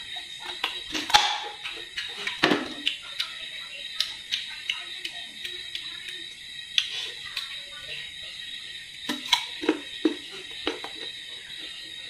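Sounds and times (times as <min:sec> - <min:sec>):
chewing crisp fruit: 0:00.0 - 0:08.1.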